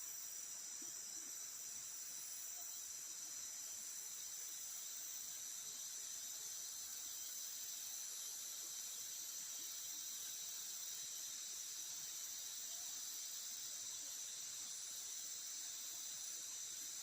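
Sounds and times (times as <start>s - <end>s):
insects chorusing shrill drone: 0.0s - 17.0s.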